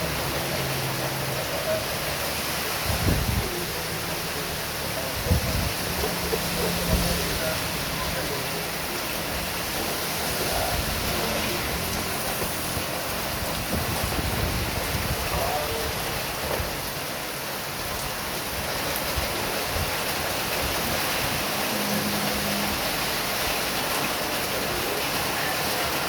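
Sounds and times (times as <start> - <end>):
heavy rain pouring: 0.0 - 26.0
gusting wind: 2.6 - 3.8, 5.0 - 9.9, 10.6 - 21.9.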